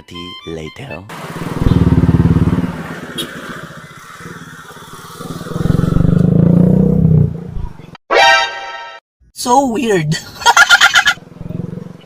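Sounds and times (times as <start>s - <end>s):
motorcycle engine revving: 1.1s - 7.6s.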